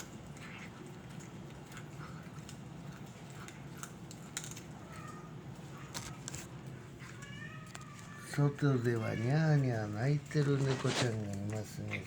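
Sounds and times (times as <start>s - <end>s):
cat crunching dry food: 0.0s - 12.0s
faint cat meow: 7.0s - 9.8s, 10.5s - 11.1s.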